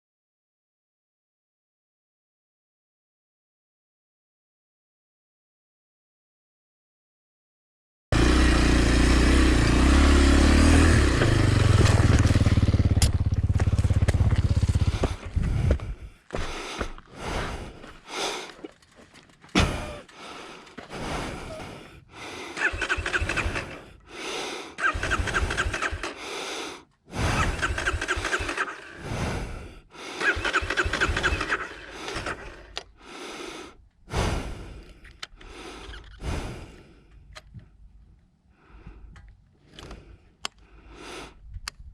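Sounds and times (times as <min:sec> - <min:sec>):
steady low rumble: 0:11.1 - 0:16.3
motorcycle electric starter cranking: 0:22.5 - 0:24.1, 0:24.8 - 0:26.2, 0:27.4 - 0:29.0, 0:30.2 - 0:33.0.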